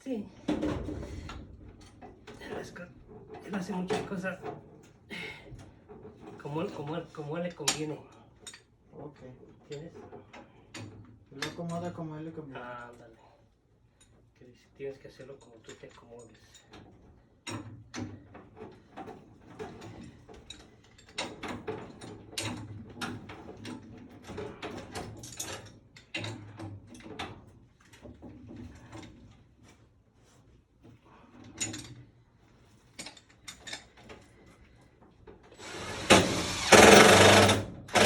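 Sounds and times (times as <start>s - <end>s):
power tool burst: 35.6s - 38.0s.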